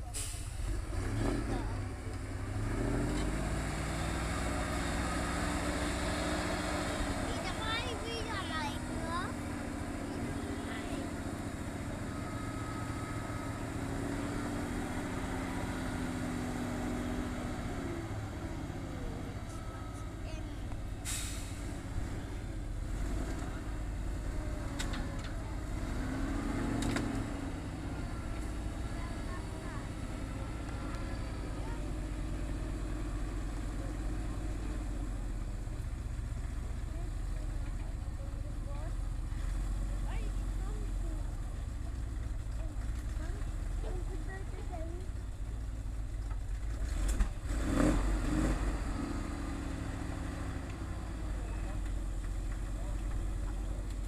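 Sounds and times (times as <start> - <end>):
truck engine rumbling: 0.0 - 54.0.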